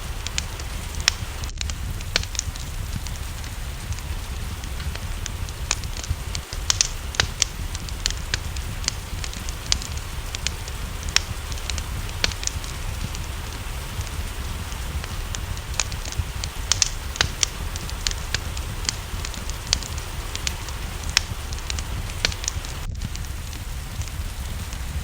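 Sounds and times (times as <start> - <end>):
rain hiss: 0.0 - 25.0
wood fire crackling: 0.0 - 25.0.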